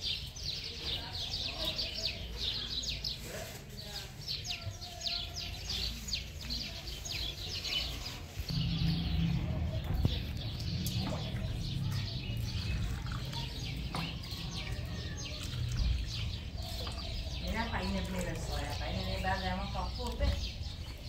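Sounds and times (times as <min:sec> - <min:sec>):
small birds chirping: 0:00.0 - 0:21.0
low steady rumble: 0:08.5 - 0:13.9.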